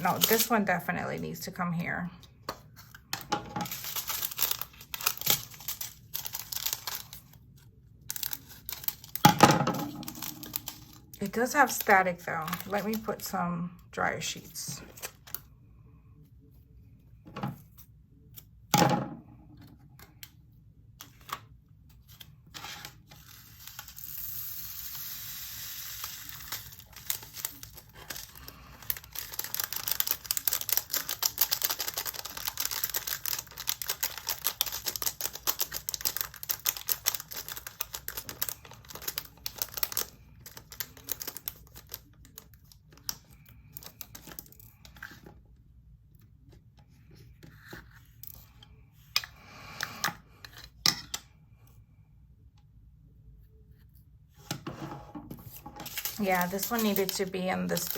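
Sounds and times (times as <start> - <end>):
plastic beads pouring into container: 23.6 - 27.6.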